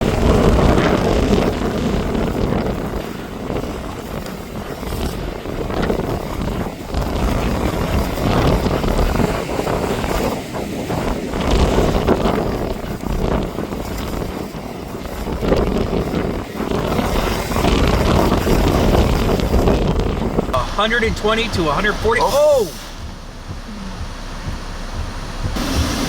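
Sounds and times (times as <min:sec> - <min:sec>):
strong wind buffeting microphone: 0:00.0 - 0:20.6.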